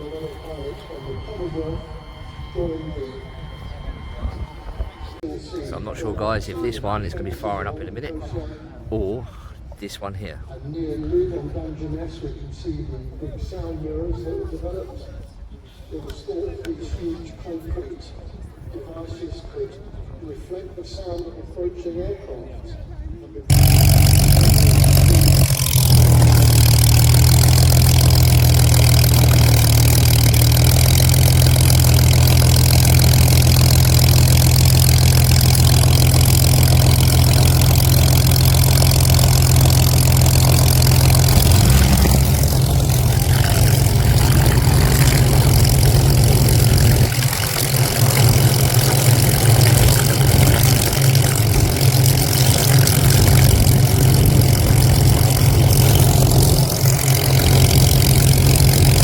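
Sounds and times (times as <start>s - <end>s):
piston aircraft engine running: 0.0s - 5.2s, 23.5s - 59.0s.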